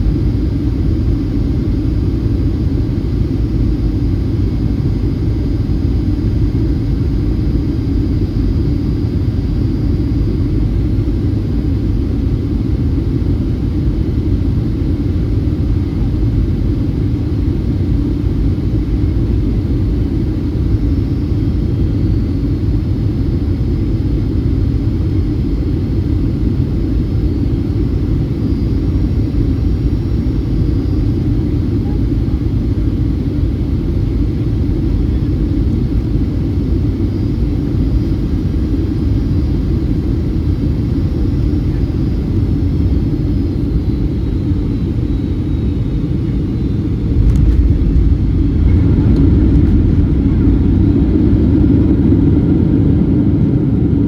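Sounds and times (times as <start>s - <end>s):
faint high whine: 0.0s - 54.0s
jet engines rumbling in cabin: 0.0s - 54.0s
airflow: 45.4s - 52.9s.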